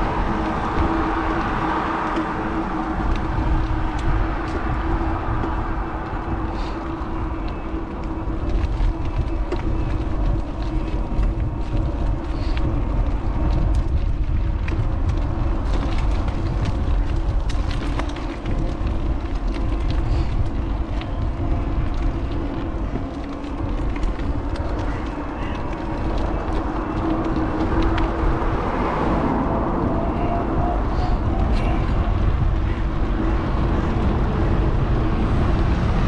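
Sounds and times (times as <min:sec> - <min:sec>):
small clicks and rattles: 0:00.0 - 0:28.7
tyre and road noise: 0:00.0 - 0:36.0
wind rushing over microphone: 0:00.0 - 0:36.0.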